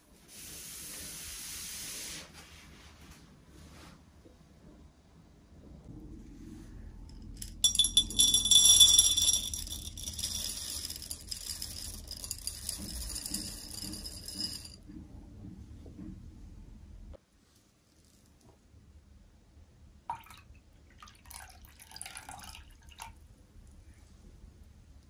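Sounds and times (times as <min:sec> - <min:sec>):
metallic jingling and rattling: 0:07.4 - 0:14.8.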